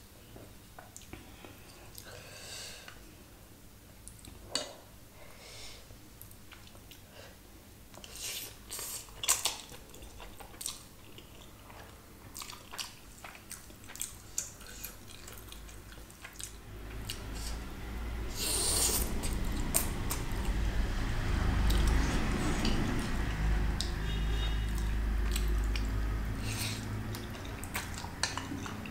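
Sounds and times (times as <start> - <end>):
person chewing noodles: 7.9 - 17.7, 18.3 - 20.6, 21.5 - 28.9.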